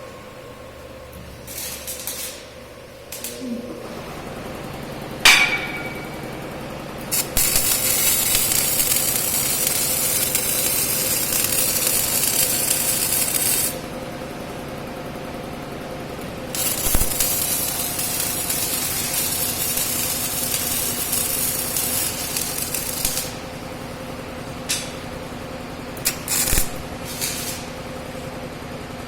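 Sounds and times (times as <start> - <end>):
welding arc sizzling: 0.7 - 28.4
metal clank with ring: 5.3 - 6.2.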